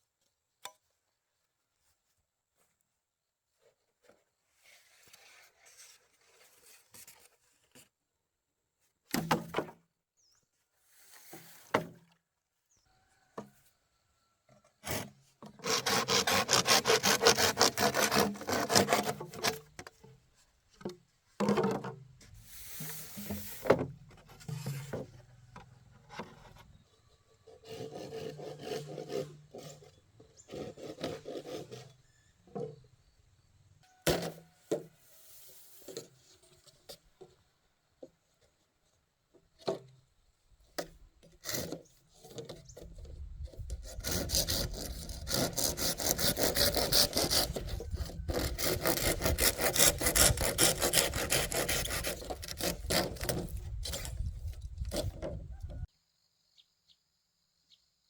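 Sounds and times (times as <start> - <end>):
blade scraping bamboo: 14.8 - 20.2, 20.8 - 32.8, 40.8 - 55.9.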